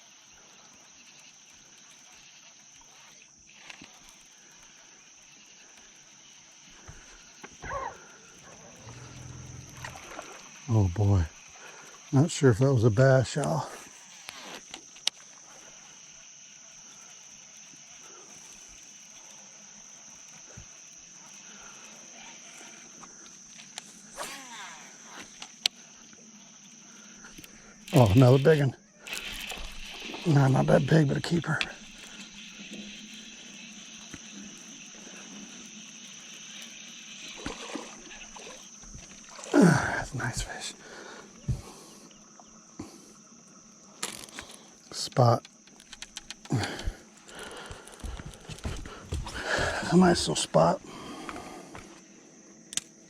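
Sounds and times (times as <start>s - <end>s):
insect drone: 0.0s - 53.0s
high-pitched buzz: 8.4s - 10.9s
water splashing and trickling: 37.2s - 40.0s.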